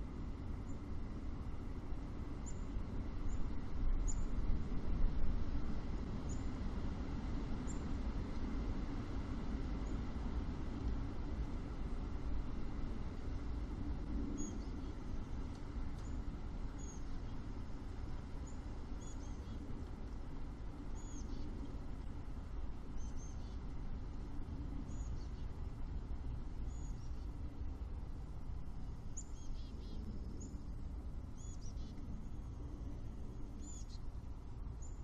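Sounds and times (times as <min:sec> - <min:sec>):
steady low rumble: 0:00.0 - 0:35.0
bird chirping: 0:16.8 - 0:17.4, 0:18.4 - 0:19.6, 0:21.0 - 0:21.5, 0:26.7 - 0:27.3, 0:29.1 - 0:30.6, 0:31.4 - 0:32.4, 0:33.6 - 0:34.1.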